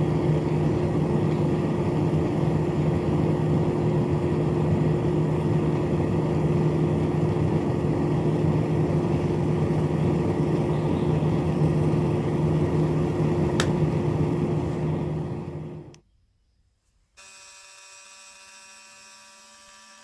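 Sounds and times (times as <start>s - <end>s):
single click: 13.6s - 13.8s
small electric motor humming: 17.2s - 20.0s.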